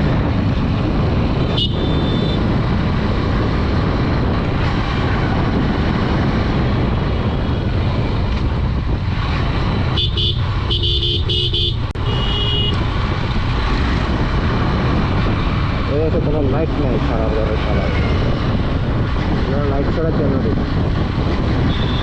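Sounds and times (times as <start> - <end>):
motorcycle engine: 0.0 - 22.0
wind rush: 0.0 - 22.0
vehicle horn short beeps: 10.0 - 12.8.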